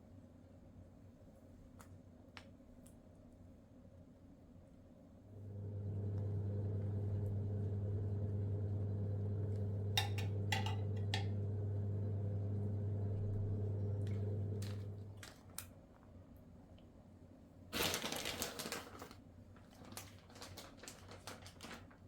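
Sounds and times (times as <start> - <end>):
low electric hum: 4.6 - 21.8.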